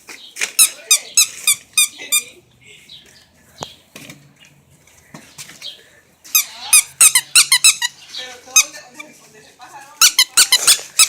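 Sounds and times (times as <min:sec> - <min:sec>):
squeaky dog toy squeaks: 0:00.6 - 0:02.4, 0:06.3 - 0:09.2, 0:10.0 - 0:11.0.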